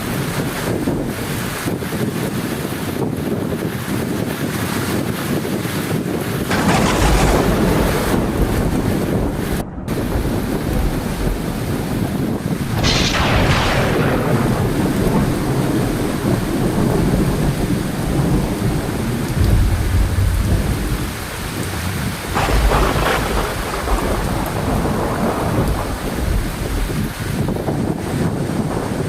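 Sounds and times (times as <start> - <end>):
heavy rain falling: 0.0 - 29.0
thunder rumbling: 0.0 - 29.0
sharp thunder crack: 6.4 - 29.0.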